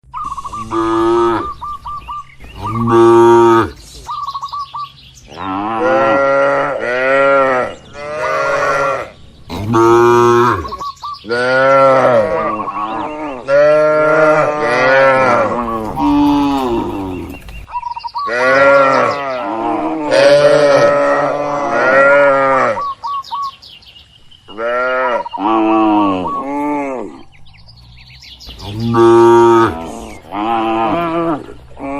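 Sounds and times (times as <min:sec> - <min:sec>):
cattle mooing: 0:00.5 - 0:01.6, 0:02.6 - 0:03.8, 0:05.3 - 0:17.4, 0:18.3 - 0:22.9, 0:28.6 - 0:31.9.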